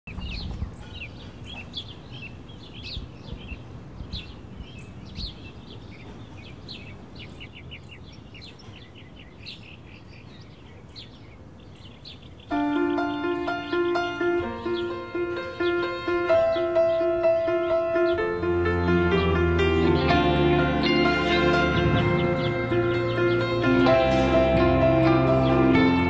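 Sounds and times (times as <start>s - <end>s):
small birds chirping: 0.1s - 26.0s
plucked string melody: 12.5s - 26.0s.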